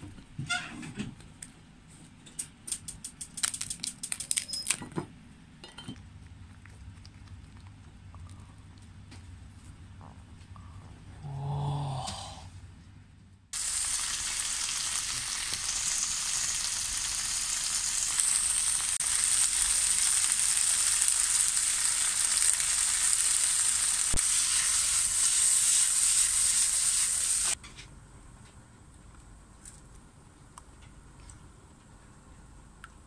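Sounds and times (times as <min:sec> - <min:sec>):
potatoes sizzling in a pan: 0:13.6 - 0:27.6.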